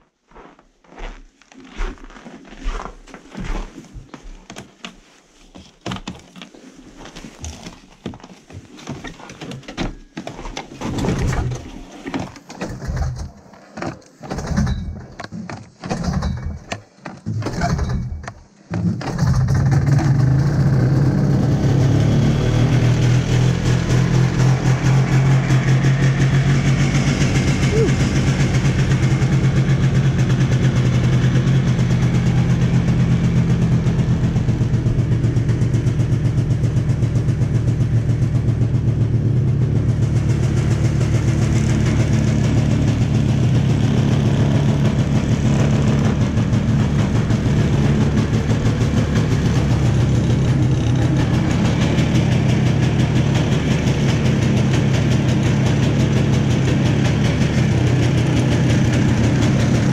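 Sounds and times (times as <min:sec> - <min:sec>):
snowmobile engine idling: 0:17.6 - 0:59.9.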